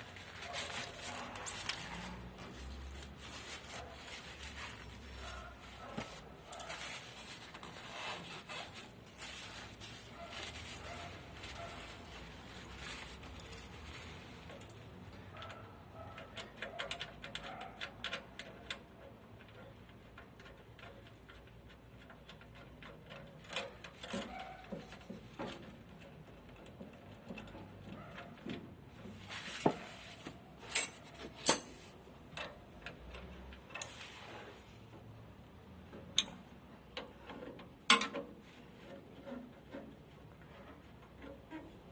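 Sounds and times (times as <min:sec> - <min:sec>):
metal parts clicking and tapping: 0:14.4 - 0:28.7, 0:30.6 - 0:34.0, 0:35.9 - 0:41.9.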